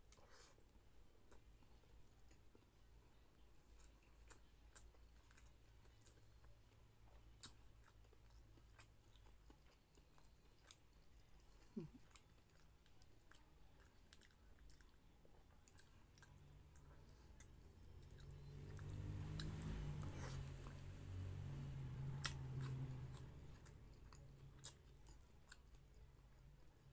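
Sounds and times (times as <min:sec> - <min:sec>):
person chewing soft food: 0:00.0 - 0:26.9.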